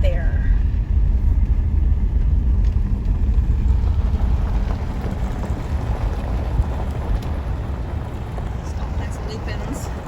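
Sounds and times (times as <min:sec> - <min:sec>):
people talking: 0:00.0 - 0:00.6, 0:08.6 - 0:10.0
wind buffeting microphone: 0:00.0 - 0:10.0.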